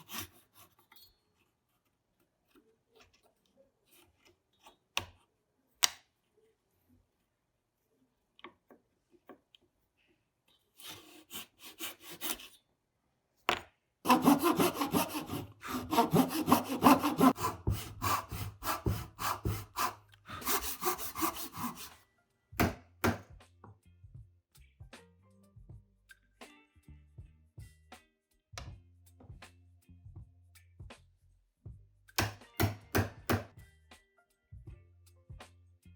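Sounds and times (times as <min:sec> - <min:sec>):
hand saw cutting wood: 0:00.0 - 0:00.8, 0:10.8 - 0:12.6, 0:14.1 - 0:22.0.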